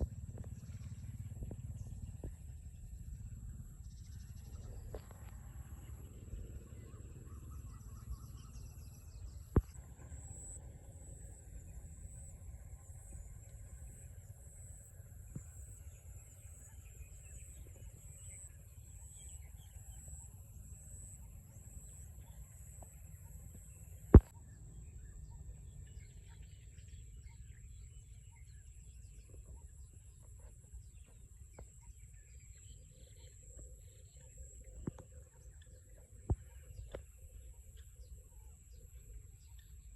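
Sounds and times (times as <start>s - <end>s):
steady high-pitched whine: 0.0s - 39.9s.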